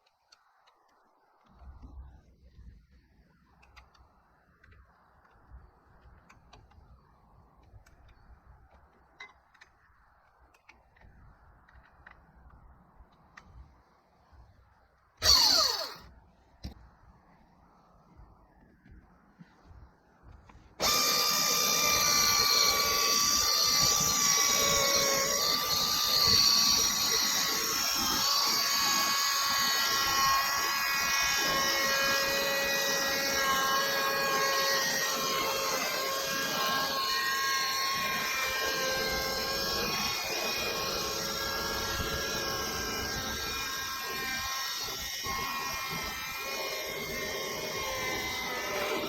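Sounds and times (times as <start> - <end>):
electric saw whining through wood: 15.2 - 16.1, 20.8 - 49.0.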